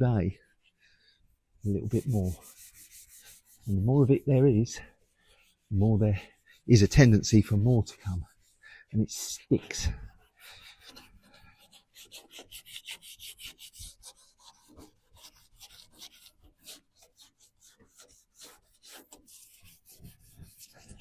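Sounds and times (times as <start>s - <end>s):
abrasive pad sanding metal: 1.7s - 8.6s.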